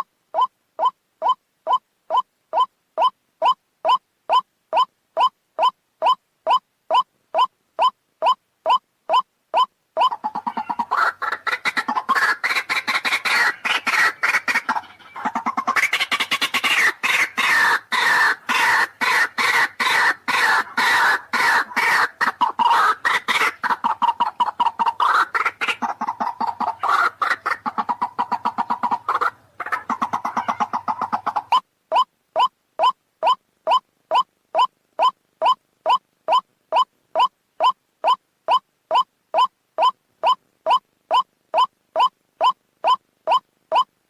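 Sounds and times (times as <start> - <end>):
waterhen calling harshly: 10.0 - 35.2.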